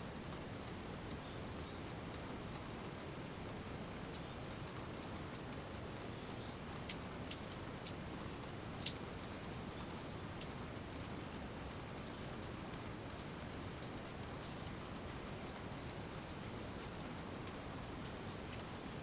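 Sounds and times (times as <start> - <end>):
steady rain falling: 0.0 - 19.0
sharp drip ticks: 5.0 - 5.8, 6.4 - 11.2, 12.0 - 14.6, 15.6 - 18.9.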